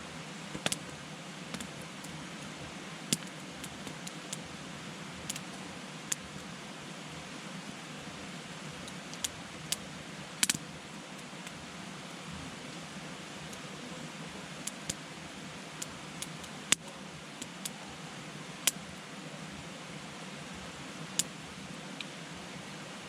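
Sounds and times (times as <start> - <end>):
campfire hissing: 0.0 - 23.0
burning wood crackling and popping: 0.5 - 2.5, 3.1 - 4.5, 5.2 - 6.3, 10.4 - 10.6, 15.8 - 17.8.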